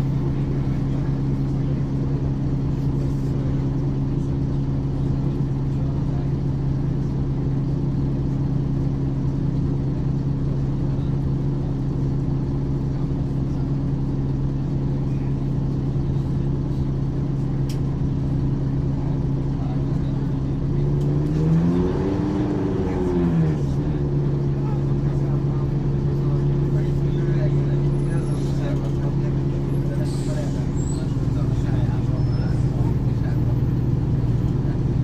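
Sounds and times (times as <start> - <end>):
bus engine running: 0.0 - 35.0.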